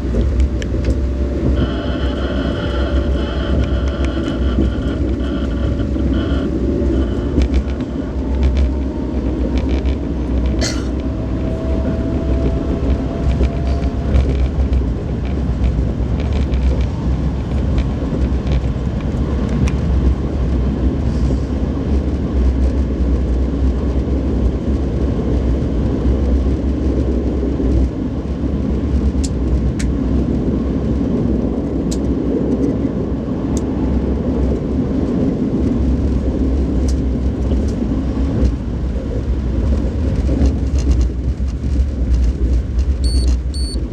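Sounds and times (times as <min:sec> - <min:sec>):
train rumbling: 0:00.0 - 0:43.9
sharp clicks: 0:00.2 - 0:16.9.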